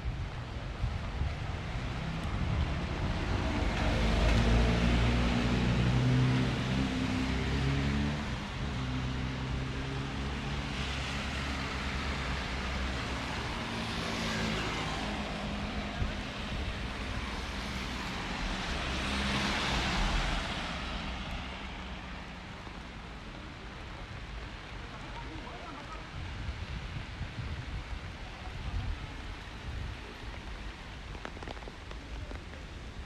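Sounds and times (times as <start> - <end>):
tyre hiss on wet road: 10.2 - 33.0.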